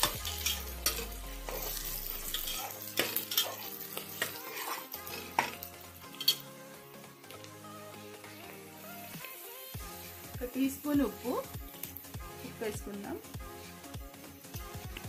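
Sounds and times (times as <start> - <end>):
metal spatula scraping pot: 0.0 - 6.5
vegetables sizzling in oil: 0.0 - 15.0.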